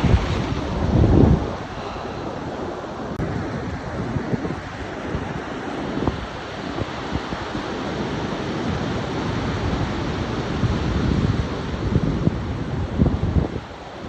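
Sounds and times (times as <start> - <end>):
surf hissing: 0.0 - 3.2
wind buffeting microphone: 0.0 - 14.0.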